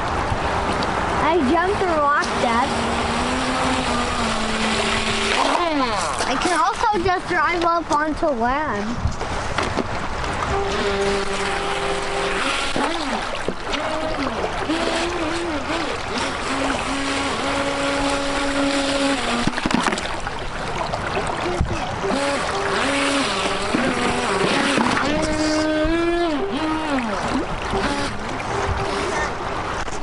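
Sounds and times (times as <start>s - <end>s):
creek rushing: 0.0s - 30.0s
electric motor whining: 1.3s - 6.4s, 10.5s - 19.9s, 21.4s - 29.6s.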